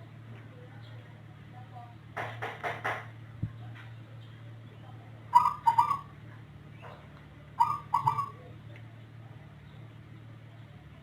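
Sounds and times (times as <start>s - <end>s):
steady low hum: 3.0s - 11.0s
dove cooing: 5.3s - 6.1s, 7.6s - 8.4s.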